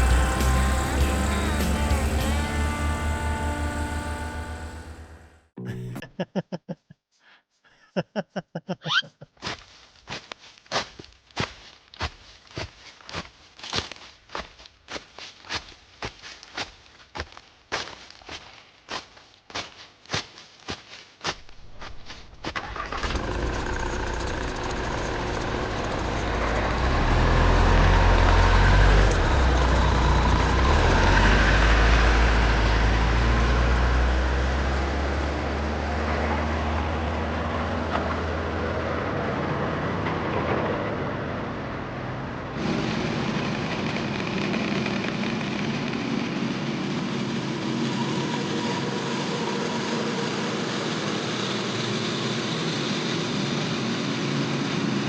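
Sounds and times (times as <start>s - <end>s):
farm machine engine rumbling: 0.0s - 6.0s, 21.4s - 35.2s, 41.2s - 55.0s.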